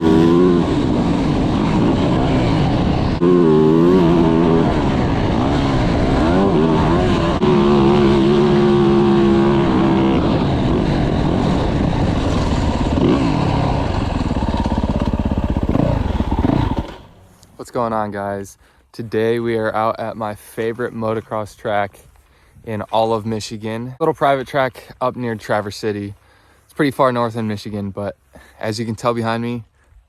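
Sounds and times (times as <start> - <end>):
motocross bike engine revving: 0.0 - 17.4.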